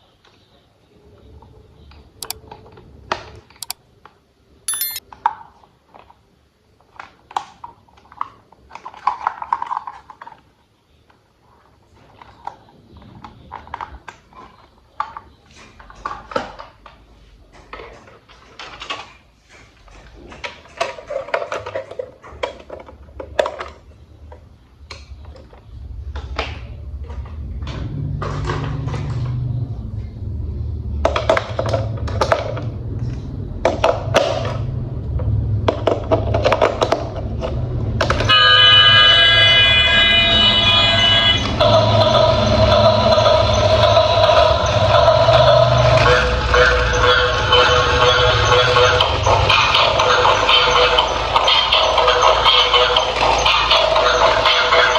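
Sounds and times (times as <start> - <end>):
short ringing ping: 4.7 - 5.0.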